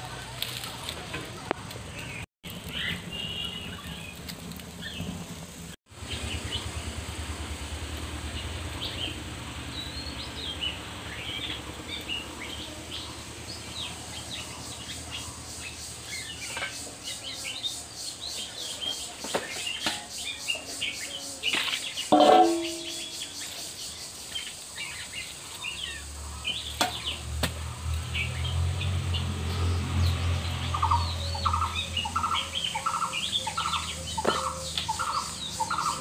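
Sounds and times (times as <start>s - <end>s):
wood fire crackling: 0.1s - 16.6s
small birds chirping: 0.6s - 5.2s, 5.9s - 36.0s.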